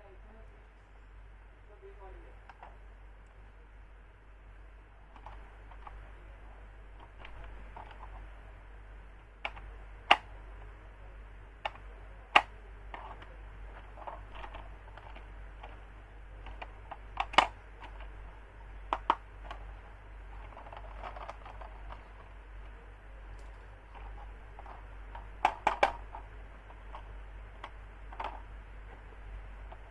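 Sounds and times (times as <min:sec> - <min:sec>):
low steady hum: 0:00.0 - 0:29.9
hands handling plastic toys: 0:05.1 - 0:06.0, 0:11.6 - 0:29.9.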